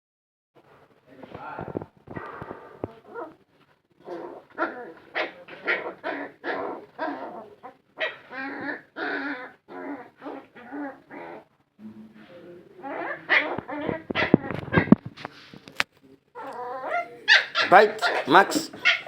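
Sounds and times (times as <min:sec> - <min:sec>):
dog whining yelps: 0:04.0 - 0:11.5, 0:16.4 - 0:19.0.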